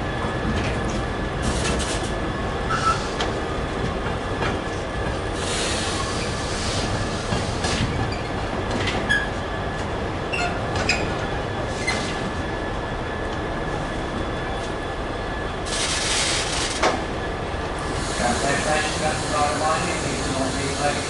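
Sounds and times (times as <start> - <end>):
train rumbling: 0.0 - 21.0
high wheel squeals: 2.7 - 3.2.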